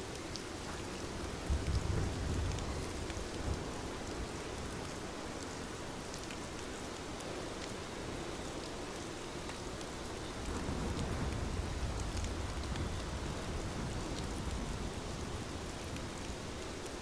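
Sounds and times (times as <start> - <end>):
steady rain hiss: 0.0 - 17.0
raindrop ticks: 0.1 - 4.2, 4.9 - 7.7, 8.6 - 13.3.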